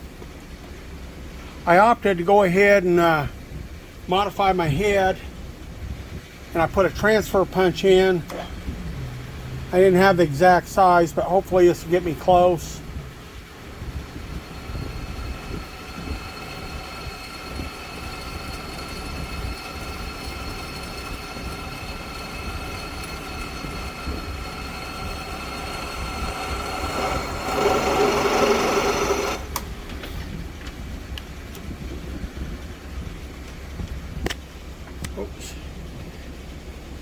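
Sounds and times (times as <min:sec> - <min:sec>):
milling machine whine: 0:13.7 - 0:30.0.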